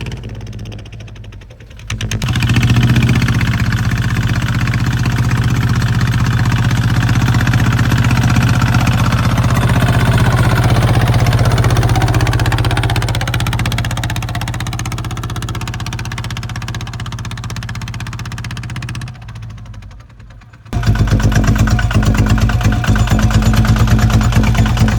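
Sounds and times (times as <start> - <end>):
tractor diesel engine knocking: 0.0 - 24.9.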